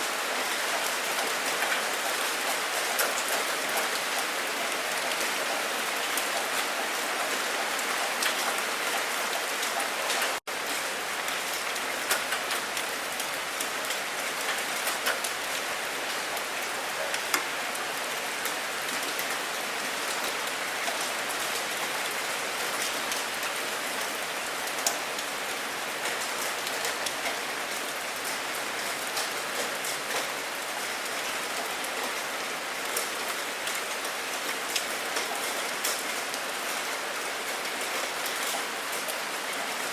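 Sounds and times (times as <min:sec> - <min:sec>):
steady rain hiss: 0:00.0 - 0:39.9
raindrops ticking on a surface: 0:00.1 - 0:39.9.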